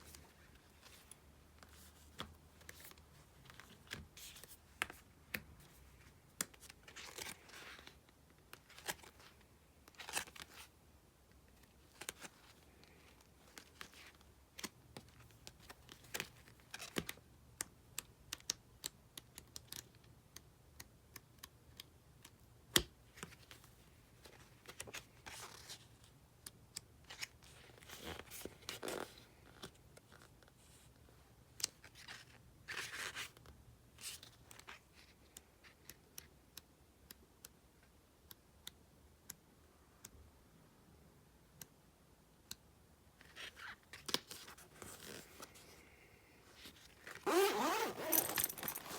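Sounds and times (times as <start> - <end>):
packaging rustling and crinkling: 46.5 - 48.9.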